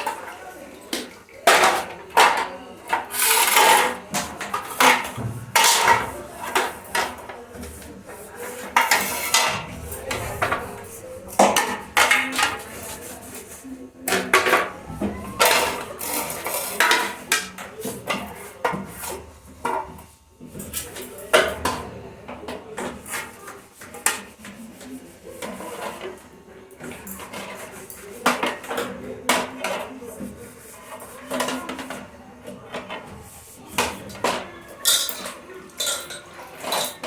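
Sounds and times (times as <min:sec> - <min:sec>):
dishes clattering and knocking: 0:00.9 - 0:13.4, 0:32.7 - 0:37.0
scraping or rubbing: 0:06.5 - 0:13.6.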